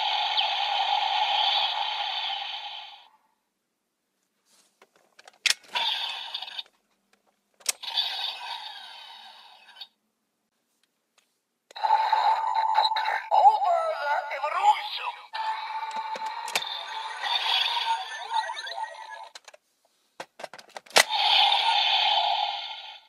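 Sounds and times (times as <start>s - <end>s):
electronic toy sound effect: 0.0s - 3.1s, 11.7s - 19.4s, 21.0s - 23.0s
toy mechanism clicks: 7.6s - 9.8s, 15.4s - 19.6s, 20.5s - 23.0s.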